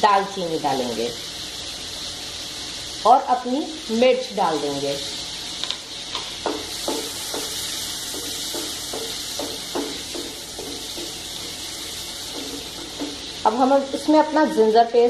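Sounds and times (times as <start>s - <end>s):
spices sizzling in butter: 0.0s - 15.0s.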